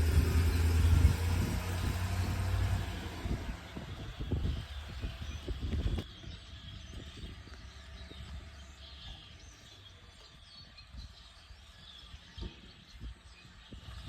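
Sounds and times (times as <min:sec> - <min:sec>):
low steady rumble: 0:00.0 - 0:06.0
songbirds chirping and singing: 0:00.0 - 0:14.0.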